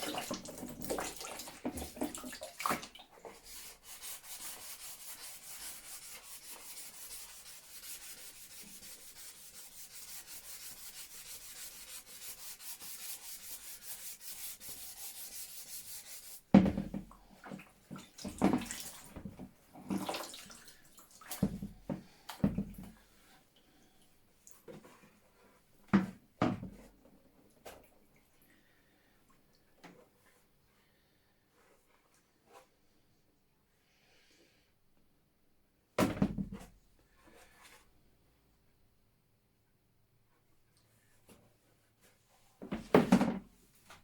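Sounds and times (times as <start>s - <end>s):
fast rhythmic rubbing: 3.4s - 16.4s.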